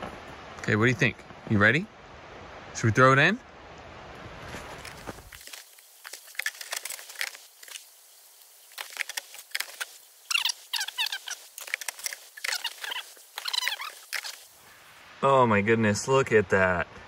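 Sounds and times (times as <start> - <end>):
wood pellets crackling in fire: 4.5 - 14.6.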